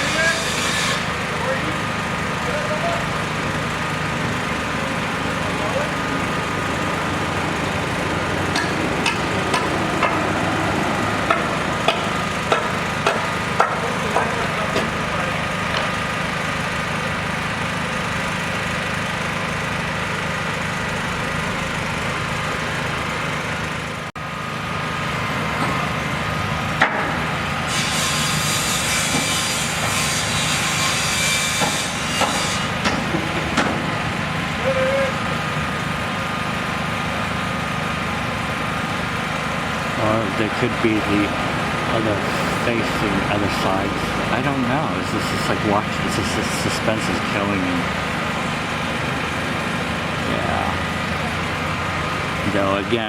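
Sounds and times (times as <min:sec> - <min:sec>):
construction machinery engine: 0:00.0 - 0:53.0
hiss: 0:42.2 - 0:43.3.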